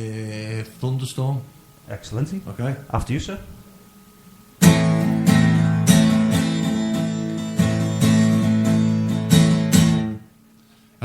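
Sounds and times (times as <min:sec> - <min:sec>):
acoustic guitar strumming: 0:03.0 - 0:10.5.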